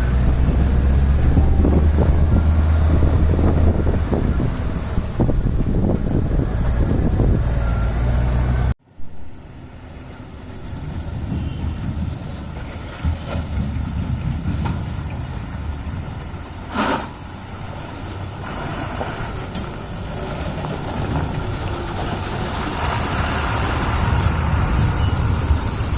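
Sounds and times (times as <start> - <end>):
diesel trucks running: 0.0 - 25.9
engine and road noise: 0.0 - 25.9
short sharp hiss: 16.7 - 17.2.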